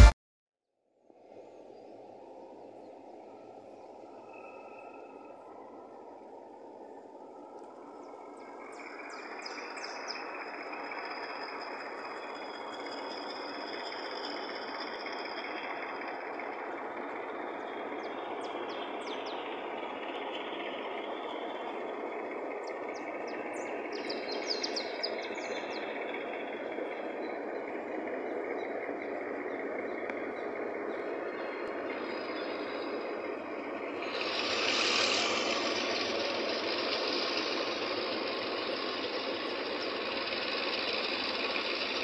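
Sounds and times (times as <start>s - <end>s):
diesel train running: 1.7s - 42.0s.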